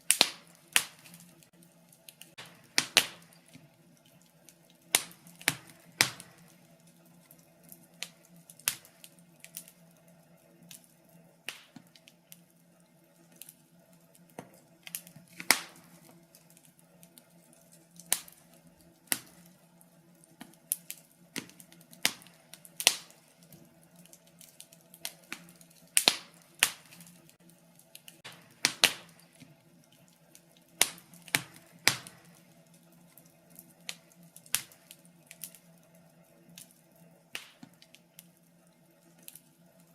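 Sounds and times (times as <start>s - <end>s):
sharp fire pops: 0.0s - 3.7s, 4.8s - 6.7s, 7.9s - 9.8s, 11.5s - 12.2s, 14.4s - 16.5s, 18.0s - 19.5s, 20.4s - 23.3s, 24.1s - 29.5s, 30.7s - 32.5s, 33.5s - 35.6s, 37.3s - 38.3s
wood fire crackling: 0.0s - 39.9s.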